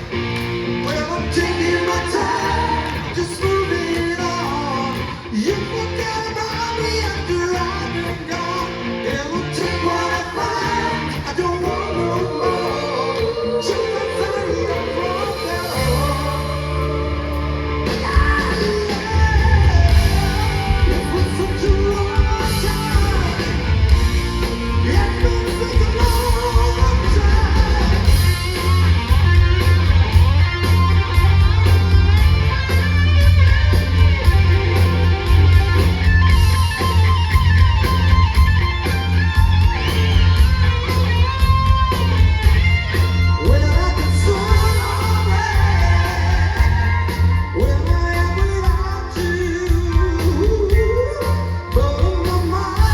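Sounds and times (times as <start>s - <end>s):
bass guitar: 0.0s - 52.9s
drums: 0.0s - 52.9s
electric guitars: 0.0s - 52.9s
lead vocal: 0.7s - 30.2s, 43.2s - 52.9s.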